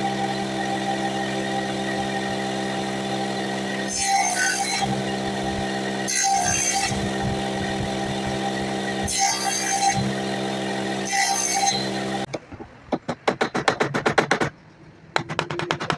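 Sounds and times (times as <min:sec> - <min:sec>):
power tool cutting bursts: 0:00.0 - 0:12.3
power tool humming: 0:00.0 - 0:12.3.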